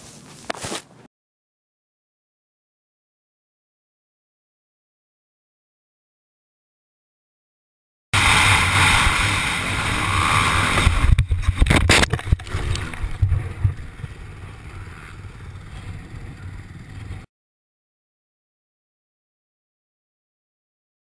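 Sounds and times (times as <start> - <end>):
scraping: 0.0 - 1.1
vehicle running at speed: 8.2 - 17.3.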